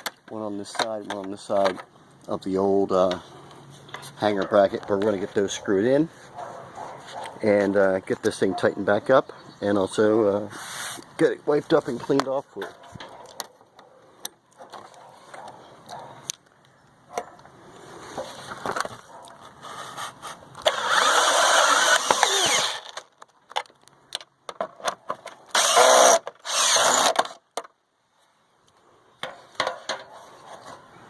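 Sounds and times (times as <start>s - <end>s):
clicks and scraping of handling: 3.0s - 5.5s, 10.8s - 20.8s, 28.6s - 30.9s
power drill driving screws: 20.6s - 23.0s, 25.5s - 27.4s.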